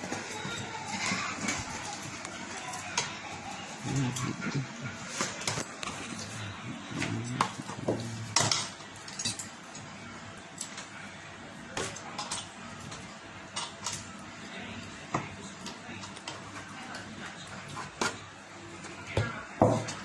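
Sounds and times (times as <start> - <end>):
utensils clinking against pots: 7.0 - 11.0, 11.8 - 18.2.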